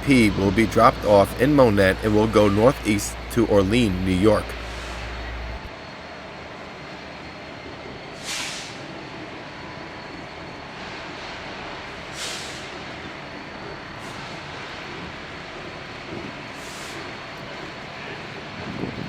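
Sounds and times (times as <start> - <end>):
train air brakes hissing: 0.0 - 5.7, 8.0 - 9.1, 10.8 - 13.0, 13.9 - 15.5, 16.4 - 17.3
train rumbling: 0.0 - 19.0.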